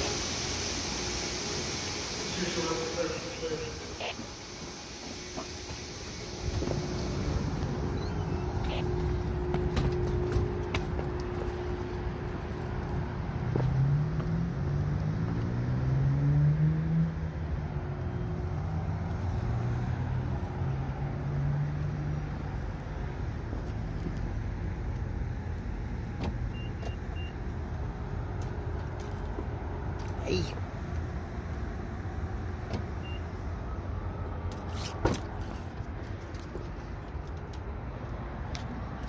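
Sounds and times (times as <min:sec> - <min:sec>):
low traffic rumble: 0:00.0 - 0:39.0
vehicle engine revving: 0:13.3 - 0:22.5.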